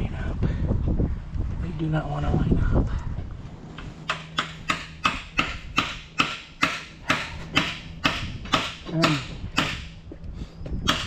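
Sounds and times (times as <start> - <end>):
hammer blows on metal: 4.1 - 10.0.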